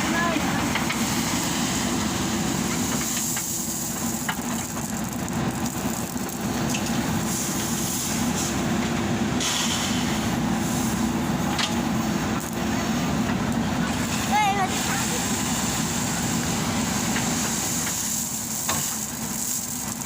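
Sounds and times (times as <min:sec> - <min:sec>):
heavy diesel machinery running: 0:00.0 - 0:20.0.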